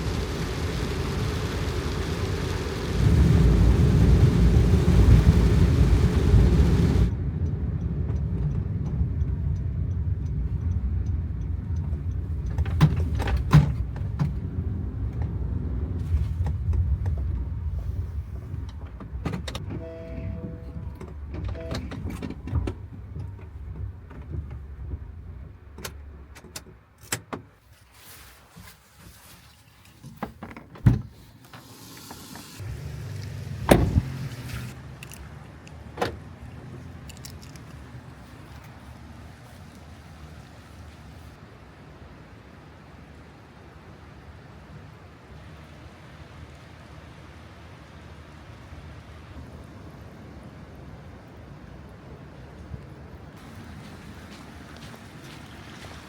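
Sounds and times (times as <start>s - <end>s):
heavy rain: 0.0s - 7.2s, 53.4s - 56.0s
muffled rain: 0.0s - 26.3s, 27.6s - 56.0s
wind: 0.0s - 56.0s
brief tone: 19.7s - 21.9s.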